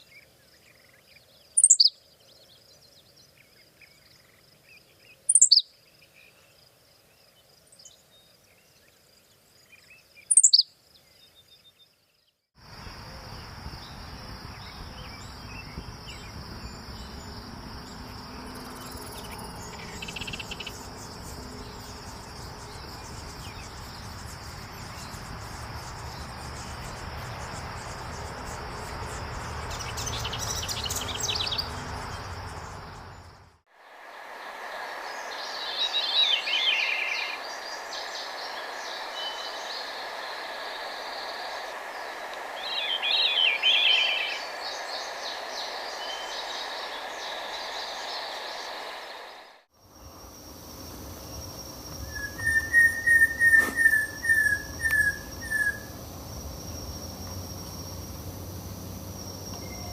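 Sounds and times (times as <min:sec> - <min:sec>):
bird chirps: 0:00.0 - 0:06.6, 0:09.6 - 0:12.4, 0:13.0 - 0:33.4, 0:35.1 - 0:49.4, 0:51.9 - 0:56.0, 0:59.2 - 0:59.9
sharp bird calls sweeping downward: 0:01.6 - 0:02.0, 0:05.3 - 0:05.7, 0:10.3 - 0:10.7, 0:52.1 - 0:55.9
insect trill: 0:12.6 - 0:59.9.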